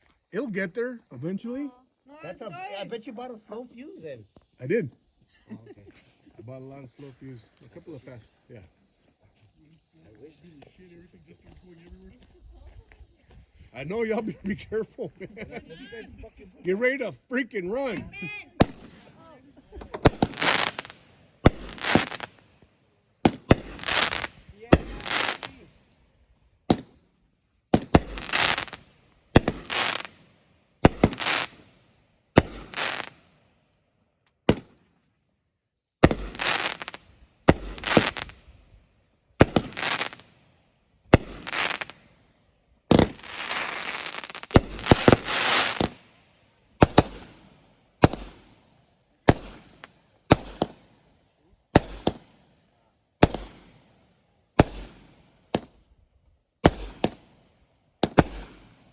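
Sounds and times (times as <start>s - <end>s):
fireworks bangs: 16.6s - 26.0s, 26.6s - 27.1s, 27.7s - 33.4s, 34.4s - 34.9s, 36.0s - 38.8s, 39.4s - 42.1s, 42.9s - 46.2s, 46.8s - 51.0s, 51.7s - 52.5s, 53.2s - 53.9s, 54.6s - 55.8s, 56.6s - 58.9s.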